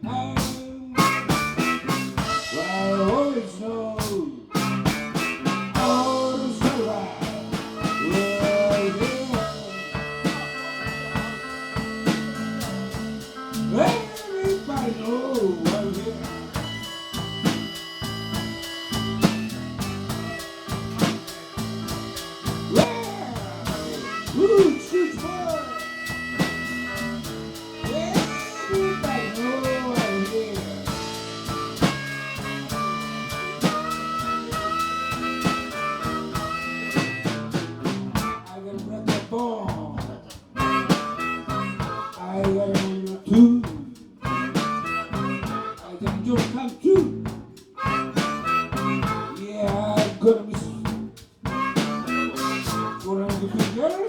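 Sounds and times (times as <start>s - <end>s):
person singing: 0.0s - 37.4s, 38.2s - 54.0s
blues band playing: 0.0s - 54.0s
drum kit beat: 0.0s - 54.0s
guitar: 0.0s - 54.0s
harmonica notes: 0.8s - 39.5s, 40.3s - 54.0s
saxophone holding a long note: 16.0s - 37.5s.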